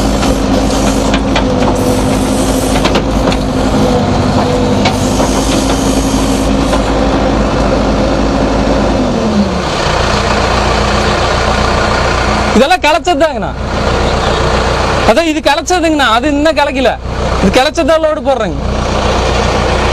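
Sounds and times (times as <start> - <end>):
diesel engine running: 0.0 - 19.9.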